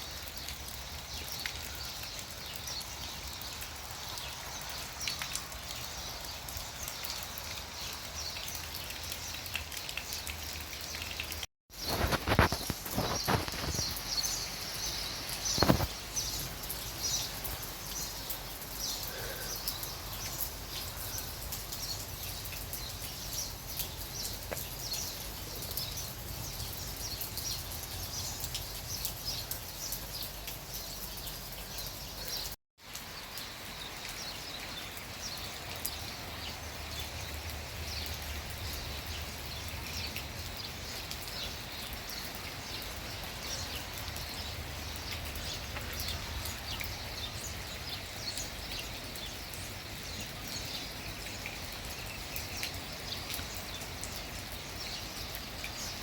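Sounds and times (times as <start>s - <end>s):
small birds chirping: 0.1s - 56.0s
outdoor hiss: 11.7s - 56.0s.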